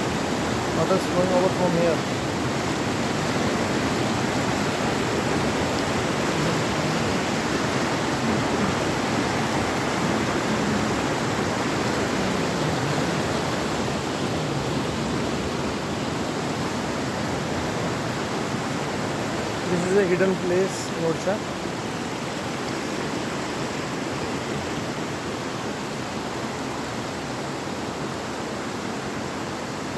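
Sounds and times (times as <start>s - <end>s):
river water rushing: 0.0s - 29.9s.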